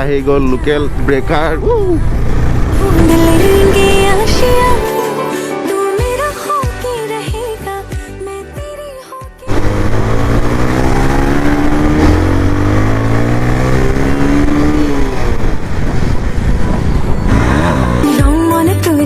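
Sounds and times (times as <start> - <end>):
motorcycle engine accelerating: 0.0 - 4.8, 9.5 - 18.4.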